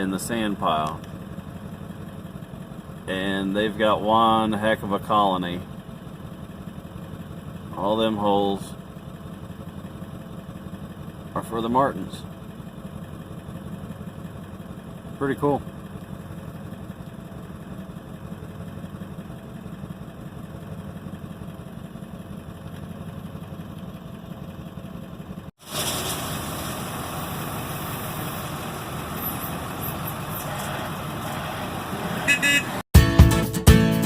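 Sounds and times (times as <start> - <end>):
vehicle engine idling: 0.0 - 32.8
louder engine running with hiss: 25.6 - 32.8.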